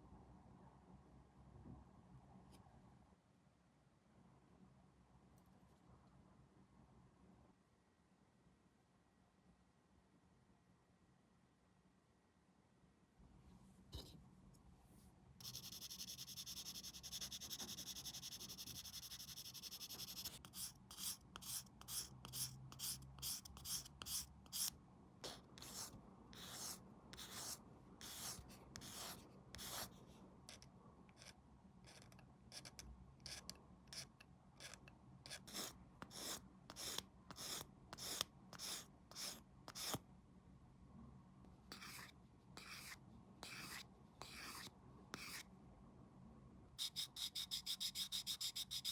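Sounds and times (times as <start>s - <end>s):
plastic part being sanded by hand: 46.8s - 48.9s.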